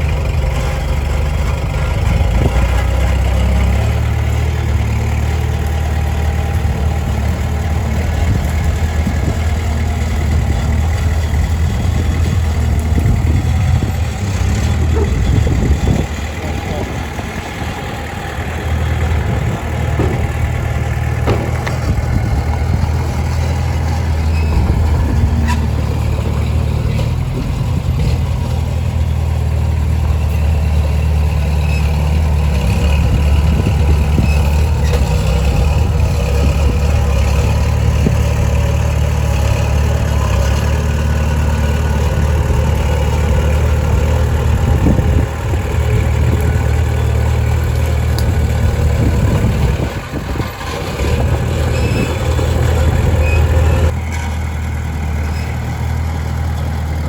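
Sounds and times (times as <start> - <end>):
heavy machinery diesel engine: 0.0 - 57.0.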